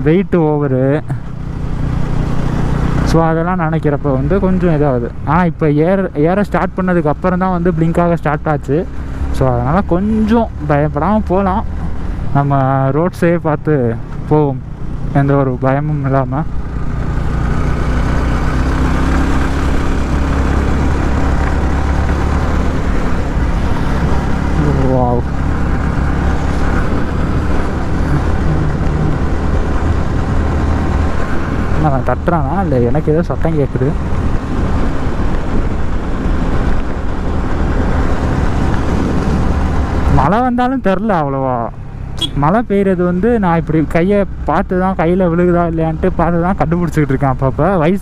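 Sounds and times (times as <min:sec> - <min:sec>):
motorcycle engine running: 0:08.8 - 0:46.9
wind rushing over microphone: 0:16.5 - 0:40.5
wind noise on microphone: 0:33.9 - 0:40.2.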